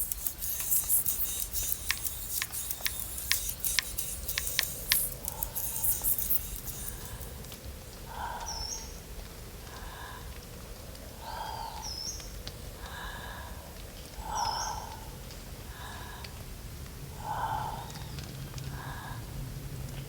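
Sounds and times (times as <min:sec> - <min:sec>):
sharp clicks: 0:00.0 - 0:07.6.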